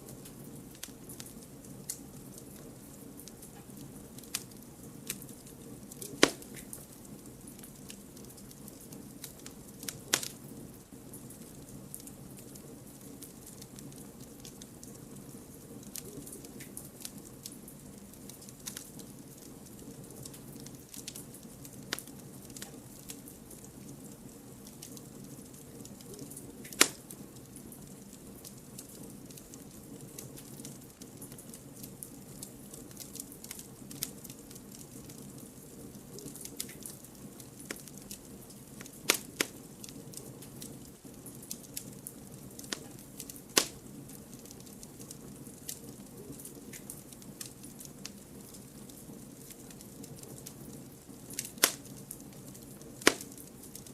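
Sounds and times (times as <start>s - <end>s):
campfire flames rustling: 0.0s - 53.9s
fire crackling: 0.0s - 53.9s
logs popping: 5.9s - 6.8s, 9.8s - 10.4s, 26.6s - 27.1s, 38.8s - 40.0s, 42.6s - 44.8s, 51.3s - 52.1s, 52.9s - 53.9s.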